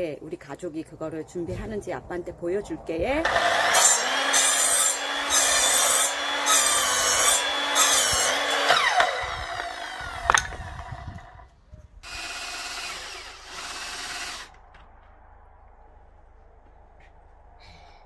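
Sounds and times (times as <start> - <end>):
power saw cutting wood: 3.2 - 11.4, 12.0 - 14.6.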